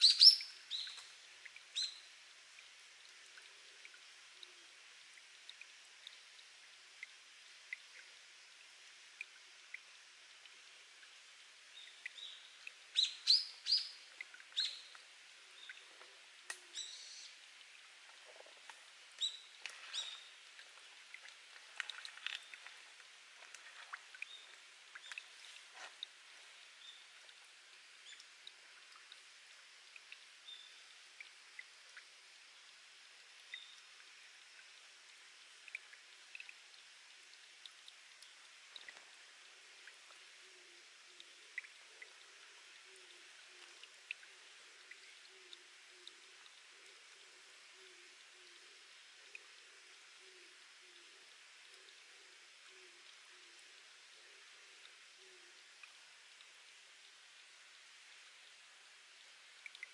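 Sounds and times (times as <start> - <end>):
faint water trickle: 0.0 - 59.9
water dripping from rock: 0.0 - 59.9.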